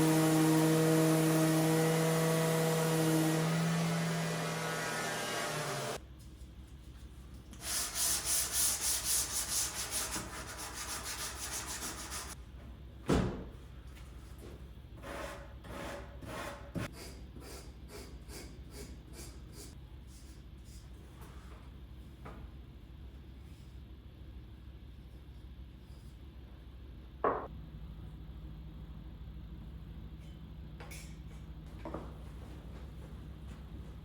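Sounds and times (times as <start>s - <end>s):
machine hum: 0.0s - 6.0s
sandpaper on wood strokes: 7.6s - 12.4s.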